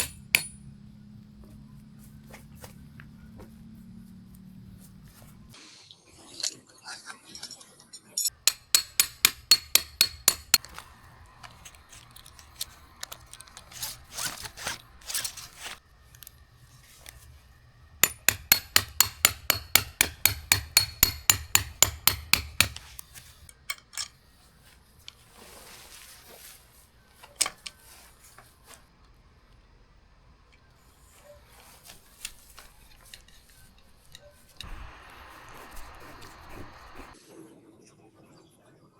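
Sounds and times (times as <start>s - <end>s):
tent pegs being hammered: 0.0s - 0.8s, 8.3s - 10.9s, 18.0s - 23.5s.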